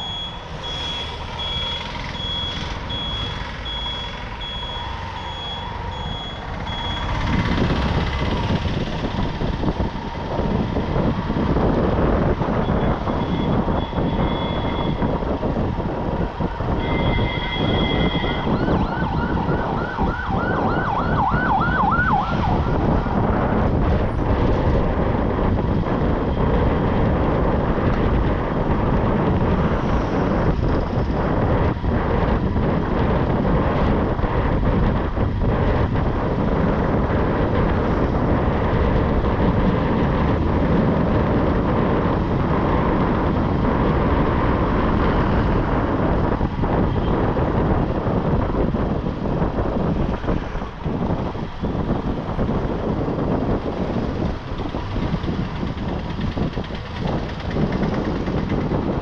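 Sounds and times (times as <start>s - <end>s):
wind and road rush: 0.0s - 59.0s
high horn tones: 16.8s - 18.5s
fast warbling siren tone: 17.1s - 22.9s.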